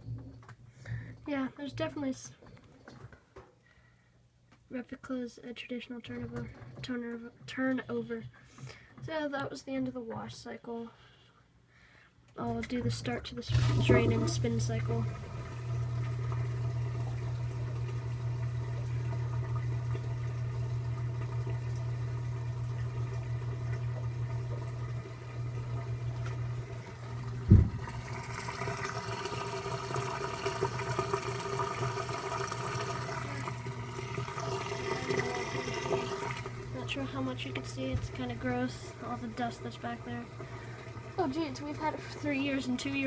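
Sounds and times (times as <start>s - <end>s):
washing machine humming: 12.5s - 43.0s
water rushing and gurgling out: 13.5s - 22.0s, 22.6s - 42.3s.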